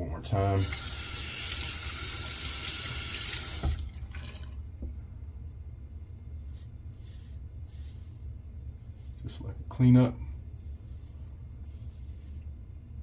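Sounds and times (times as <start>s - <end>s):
water running from tap into sink: 0.6s - 4.6s
tap shutting off knock: 3.5s - 3.9s.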